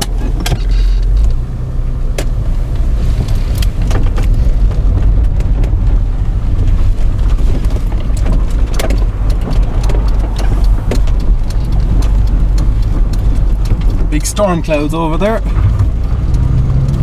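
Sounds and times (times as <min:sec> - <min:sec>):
car engine and road rumble: 0:00.0 - 0:17.0
light ticks: 0:06.6 - 0:17.0.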